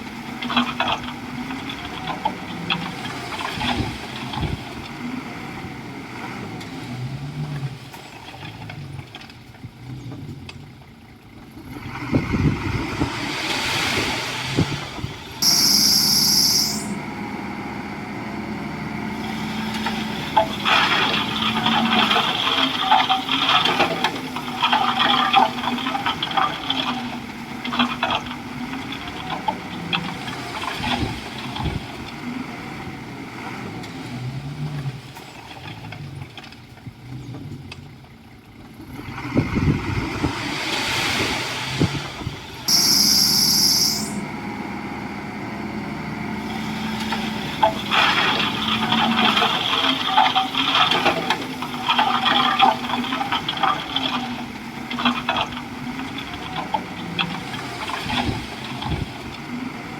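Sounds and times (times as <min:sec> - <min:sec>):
bulldozer diesel engine running: 0:00.0 - 0:59.9
brief high-pitched sound: 0:15.4 - 0:17.0, 0:42.7 - 0:44.2
crackling and scraping of brush: 0:19.2 - 0:32.0, 0:46.5 - 0:59.4.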